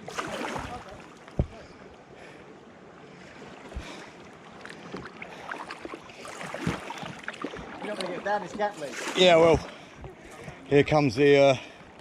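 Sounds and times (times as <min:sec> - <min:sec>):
water washing: 0:00.0 - 0:01.7, 0:03.7 - 0:11.7
canoe knocks: 0:00.4 - 0:01.6.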